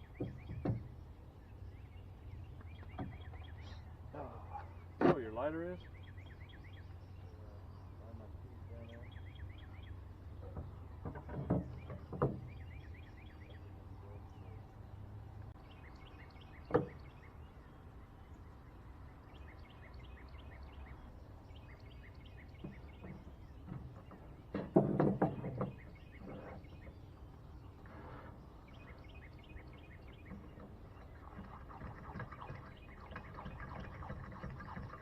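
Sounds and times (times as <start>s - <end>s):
sharp knocks: 22.6s - 25.9s.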